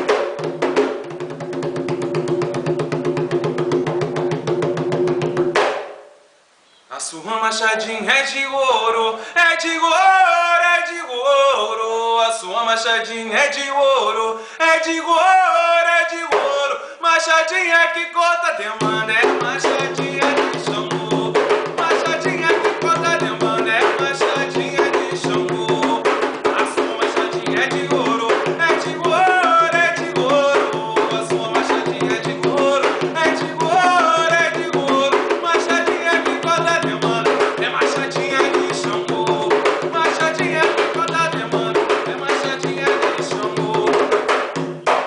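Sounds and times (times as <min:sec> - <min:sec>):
hand drums playing fast rhythm: 0:00.0 - 0:06.0, 0:18.8 - 0:45.0.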